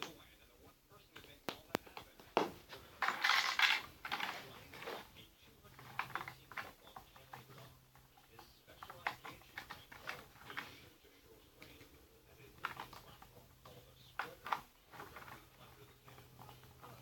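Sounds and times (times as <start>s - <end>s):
plastic lego pieces clicking: 3.0s - 4.4s.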